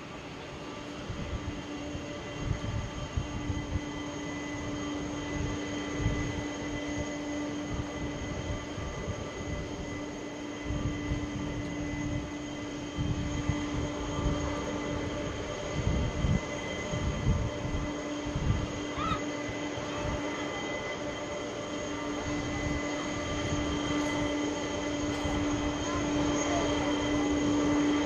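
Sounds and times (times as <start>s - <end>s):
distant jet engines humming: 0.0s - 28.0s
wind buffeting microphone: 12.8s - 18.8s.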